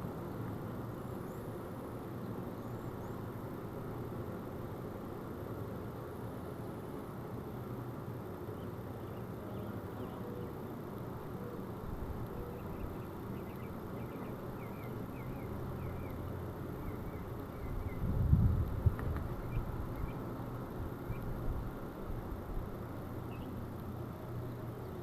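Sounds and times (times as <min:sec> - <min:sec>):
bees buzzing: 0:06.7 - 0:25.0
faint bird chirps: 0:08.5 - 0:10.6, 0:12.3 - 0:18.1, 0:19.4 - 0:20.3, 0:23.2 - 0:23.6.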